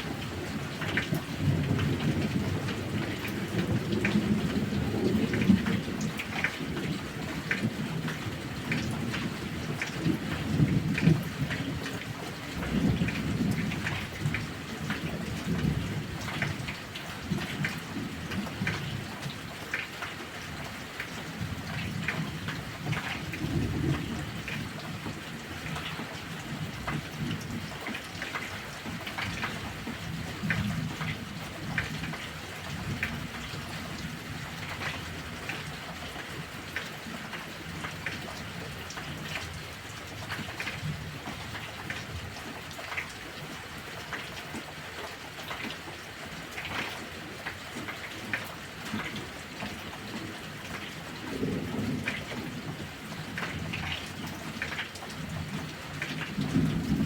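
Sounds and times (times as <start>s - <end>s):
drips and splashes: 0.0s - 57.0s
heavy rain: 0.0s - 57.0s
rolling thunder: 51.2s - 54.0s, 56.2s - 57.0s.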